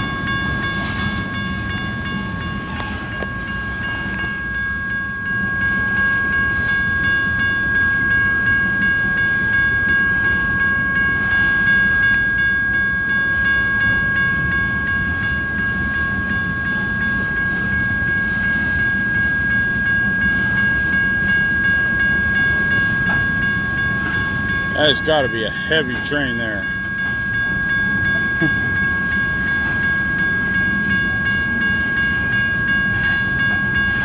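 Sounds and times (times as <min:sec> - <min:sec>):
freight train wheels rumbling: 0:00.0 - 0:34.0
high-pitched ringing tone: 0:00.0 - 0:34.0.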